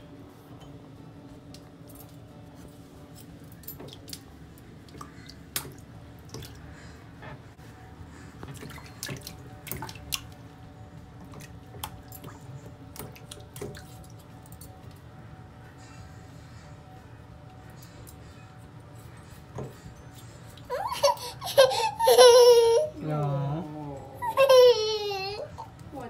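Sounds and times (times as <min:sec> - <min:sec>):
water dripping and splashing in sink: 0:03.6 - 0:06.7, 0:08.4 - 0:10.4, 0:11.2 - 0:15.0.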